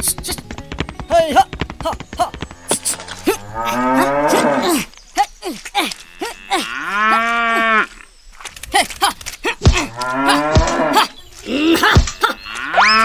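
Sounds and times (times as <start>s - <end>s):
cattle mooing: 2.6s - 4.7s.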